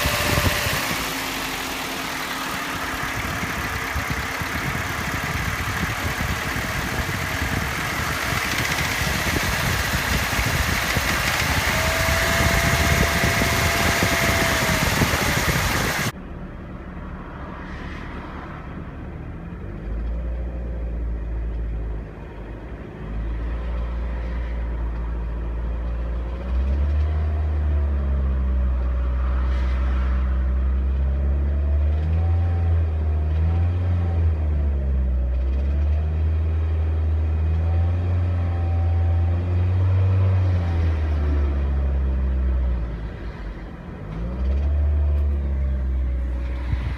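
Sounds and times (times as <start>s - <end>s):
metallic engine rattle: 0.0s - 16.1s
steady rush: 0.0s - 16.1s
car engine revving: 0.0s - 16.2s.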